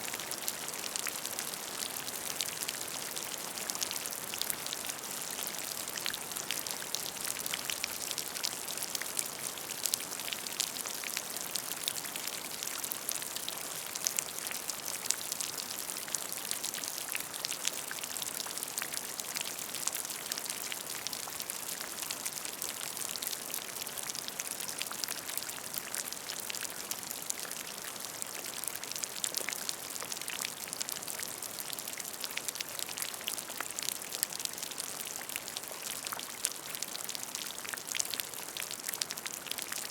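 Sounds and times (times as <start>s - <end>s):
rain falling on a puddle: 0.0s - 39.9s.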